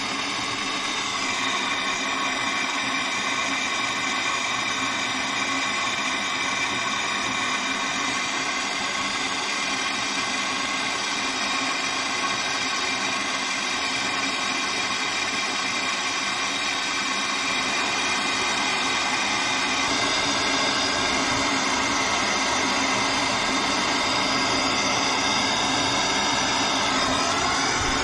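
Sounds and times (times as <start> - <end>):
blowtorch burning: 16.8 - 28.0.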